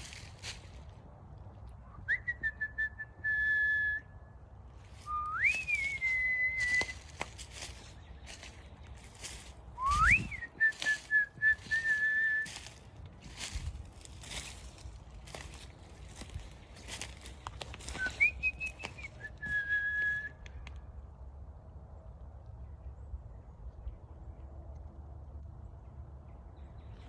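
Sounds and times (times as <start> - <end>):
rising whistle notes: 5.0 - 7.1, 9.8 - 12.6, 17.9 - 20.4.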